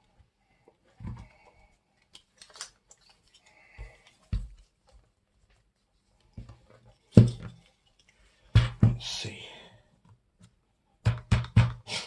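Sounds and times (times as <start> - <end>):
plastic parts clicking and knocking: 2.0 - 3.2, 11.0 - 11.8.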